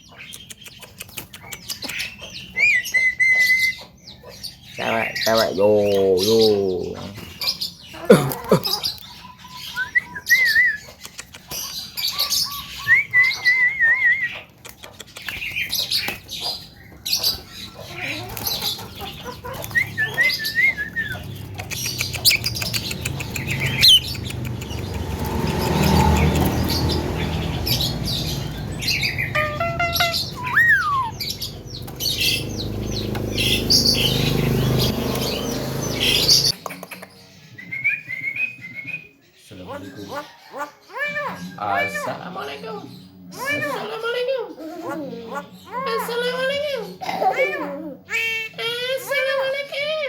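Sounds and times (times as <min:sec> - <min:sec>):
myna singing chirps and whistles: 0:00.2 - 0:04.0, 0:08.7 - 0:14.6, 0:19.5 - 0:36.6.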